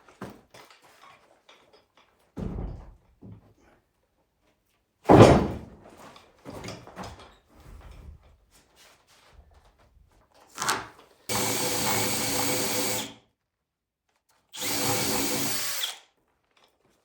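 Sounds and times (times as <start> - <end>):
dull thud: 5.1 - 5.8.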